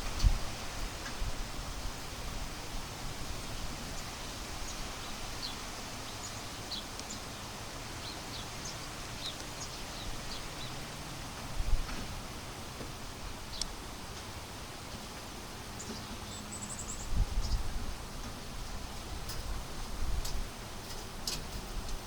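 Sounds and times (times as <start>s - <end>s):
wind buffeting microphone: 0.0s - 6.8s, 7.5s - 12.3s, 16.9s - 20.6s
wind through leaves: 0.0s - 22.0s.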